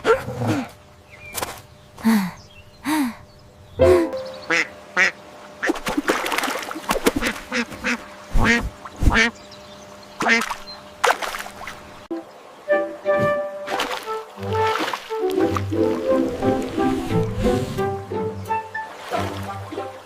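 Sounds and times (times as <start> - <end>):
ducks quacking: 3.8 - 5.8, 7.1 - 9.4, 10.2 - 10.6.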